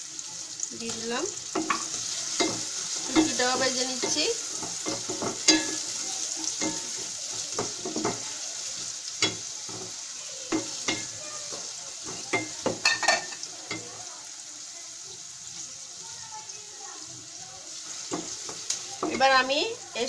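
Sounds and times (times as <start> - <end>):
onions sizzling in hot oil: 0.0 - 20.0
wooden spoon knocking a pot: 1.5 - 6.0, 6.6 - 8.3, 9.2 - 13.9.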